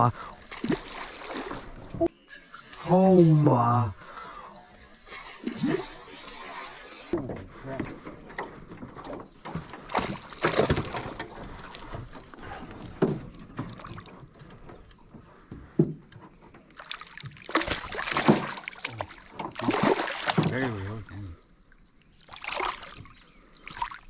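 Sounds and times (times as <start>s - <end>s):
water splashes: 0.0s - 2.1s, 9.8s - 12.7s, 16.7s - 24.0s.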